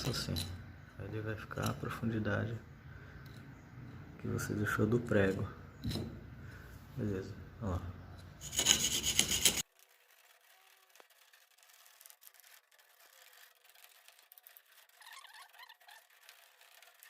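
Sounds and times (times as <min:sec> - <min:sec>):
faint scratching: 0:08.0 - 0:17.0
nail scraping mortar: 0:08.2 - 0:17.0.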